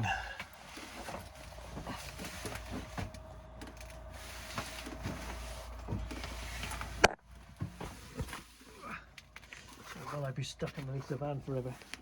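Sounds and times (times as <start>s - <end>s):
steady low hum: 0.0s - 11.7s
small knocks and scuffs: 0.4s - 8.6s.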